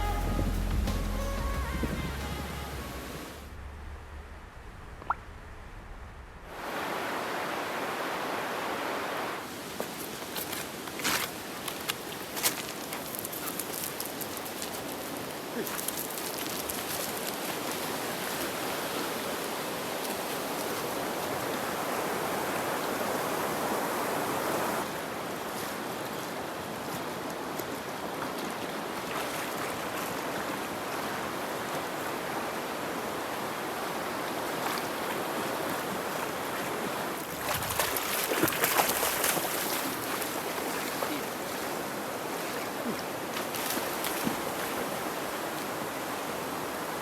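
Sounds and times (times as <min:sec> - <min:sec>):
fast-flowing river rushing: 0:06.5 - 0:09.6, 0:17.3 - 0:47.0.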